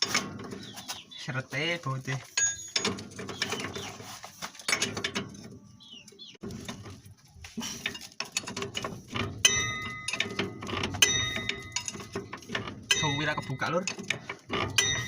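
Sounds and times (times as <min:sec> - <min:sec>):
metal tools clinking on bolt: 0:00.0 - 0:00.8, 0:02.2 - 0:03.9, 0:07.8 - 0:15.0
ringing metal strikes: 0:09.3 - 0:12.2, 0:12.8 - 0:15.0.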